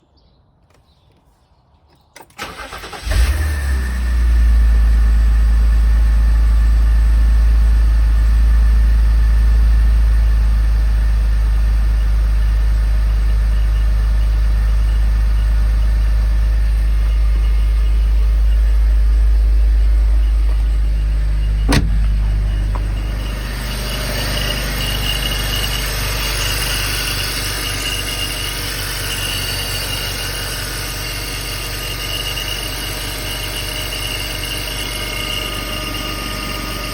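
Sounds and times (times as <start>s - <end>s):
car engine idling: 2.4s - 36.9s
high chirping ringing noise: 13.5s - 36.9s.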